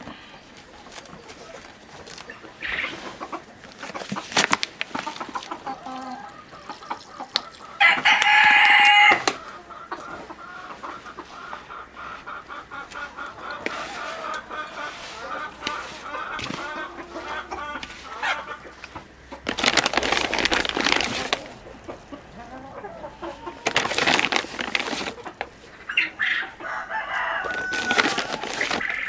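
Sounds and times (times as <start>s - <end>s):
chickens clucking: 0.0s - 29.0s
rooster crowing: 7.8s - 9.7s, 26.0s - 29.0s.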